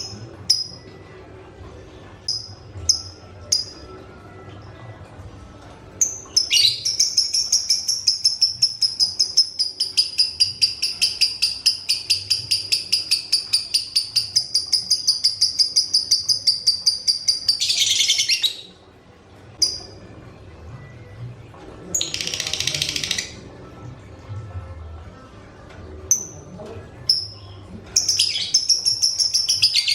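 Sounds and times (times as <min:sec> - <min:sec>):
lovebird rapid high chirps: 0:06.0 - 0:18.7, 0:19.6 - 0:19.9, 0:27.1 - 0:29.9.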